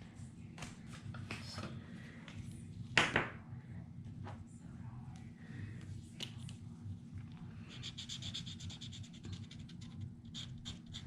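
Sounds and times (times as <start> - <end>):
steady low hum: 0.0 - 11.0
rubbing strokes on paper: 7.6 - 11.0.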